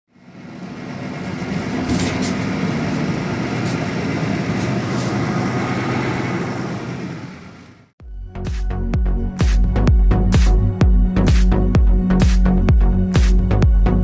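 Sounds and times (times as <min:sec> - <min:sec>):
vehicle rumble from inside: 0:00.1 - 0:08.0.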